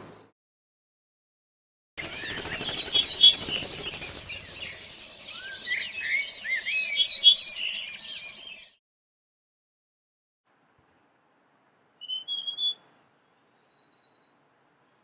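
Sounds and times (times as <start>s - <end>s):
fast fluttering patter: 2.0s - 5.2s
songbirds singing and chirping: 2.0s - 8.8s, 12.0s - 15.0s.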